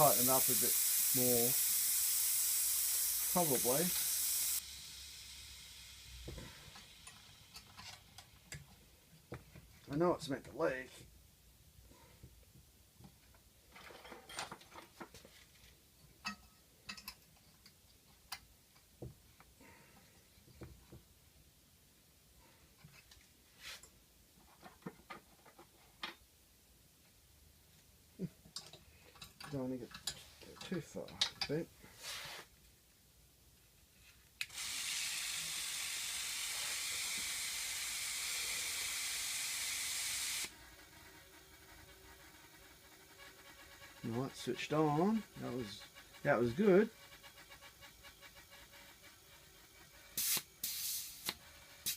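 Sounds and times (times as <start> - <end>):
compressed air hissing: 0.0 - 7.6, 34.4 - 40.5, 50.1 - 51.9
small tools clicking and knocking: 16.2 - 18.9, 28.4 - 31.6
valve click: 34.4 - 36.3, 50.2 - 51.9.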